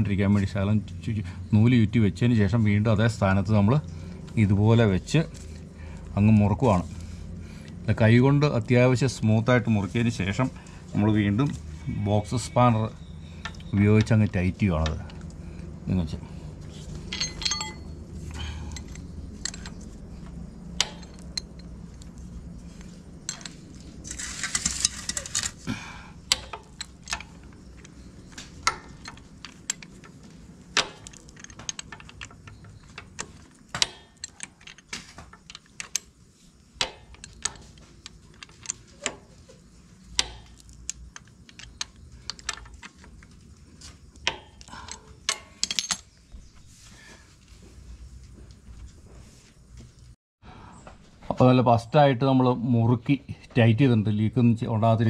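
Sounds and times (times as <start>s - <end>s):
spanner clinking on metal: 16.9s - 46.2s.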